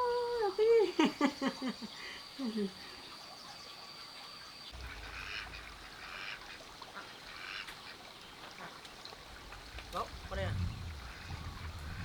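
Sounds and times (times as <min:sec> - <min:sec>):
poultry calling: 0:04.8 - 0:07.8.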